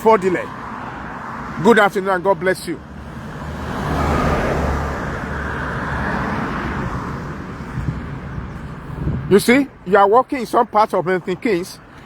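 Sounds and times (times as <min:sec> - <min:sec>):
car driving past: 0:03.0 - 0:08.0.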